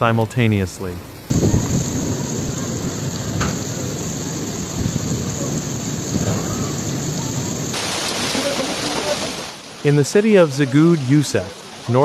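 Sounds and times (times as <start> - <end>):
heavy rain pouring: 0.0 - 12.0
low rumble: 1.3 - 7.8
sharp thunder crack: 1.3 - 8.6.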